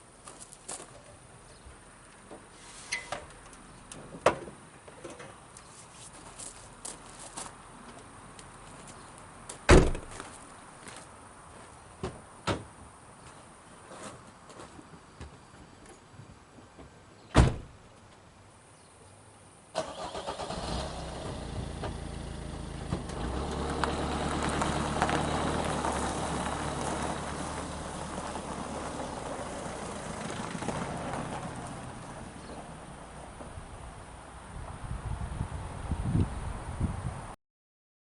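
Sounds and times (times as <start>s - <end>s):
car door shutting: 9.7s - 10.2s, 17.3s - 17.7s
car engine starting and running: 19.8s - 33.5s.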